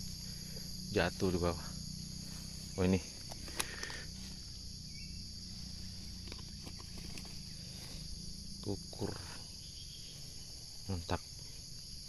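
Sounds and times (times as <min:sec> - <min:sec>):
insects droning: 0:00.0 - 0:12.0
faint clicks and rustles: 0:05.5 - 0:08.1.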